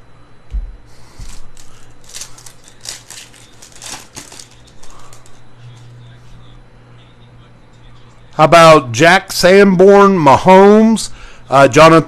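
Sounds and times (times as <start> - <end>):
foil wrapper tearing and crinkling: 1.2 - 5.8.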